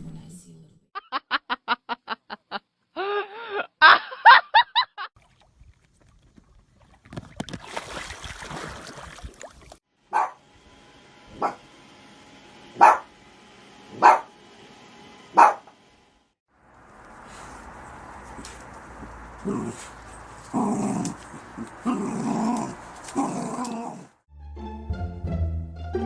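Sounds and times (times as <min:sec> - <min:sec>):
dog barking: 0:10.1 - 0:10.4, 0:11.4 - 0:11.6, 0:12.8 - 0:13.1, 0:14.0 - 0:14.3, 0:15.3 - 0:15.7.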